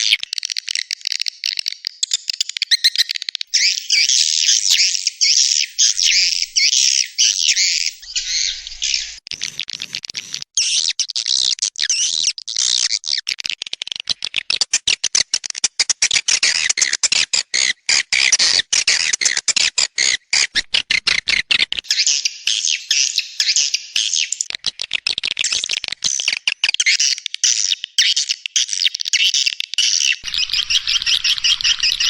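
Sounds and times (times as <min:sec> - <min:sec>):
swiftlets twittering: 0:03.5 - 0:08.5.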